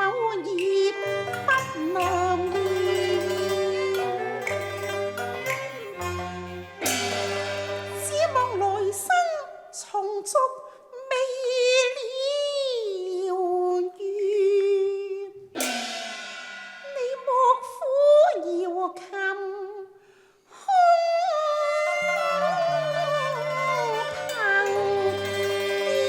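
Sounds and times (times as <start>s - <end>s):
opera music sliding melody: 0.6s - 9.2s, 21.0s - 26.0s
cymbal crash: 1.2s - 8.2s, 15.6s - 17.4s.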